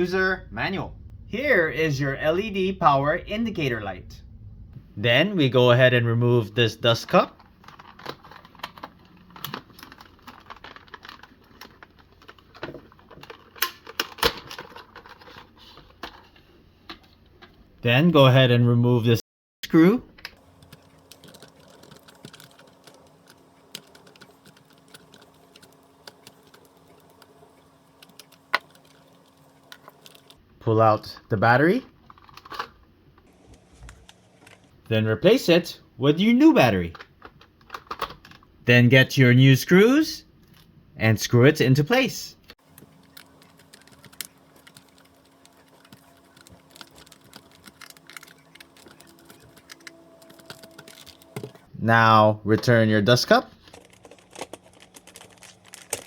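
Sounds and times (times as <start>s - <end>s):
faint steady hum: 19.7s - 38.7s, 42.3s - 56.0s.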